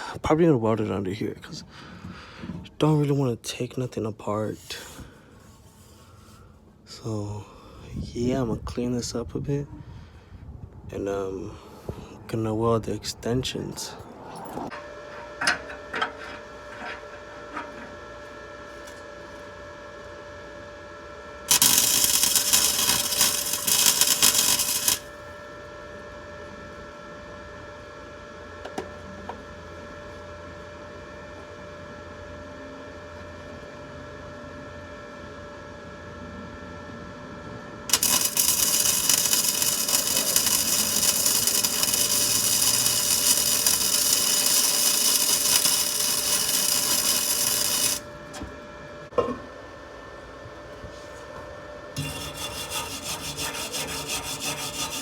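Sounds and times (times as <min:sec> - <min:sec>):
power grinder on metal: 0:21.5 - 0:25.1, 0:37.9 - 0:48.0, 0:52.0 - 0:55.0.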